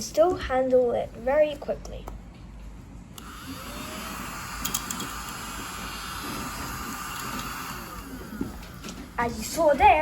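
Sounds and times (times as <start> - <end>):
mini vacuum cleaner whirring: 3.2 - 9.5.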